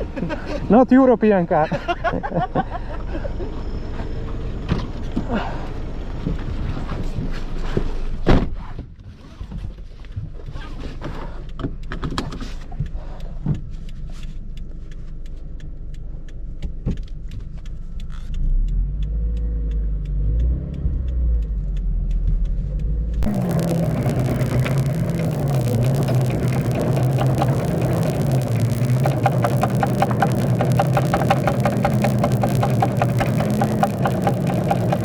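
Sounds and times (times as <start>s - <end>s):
tire knocking and ticking: 9.4s - 35.0s
car engine running low: 12.5s - 35.0s.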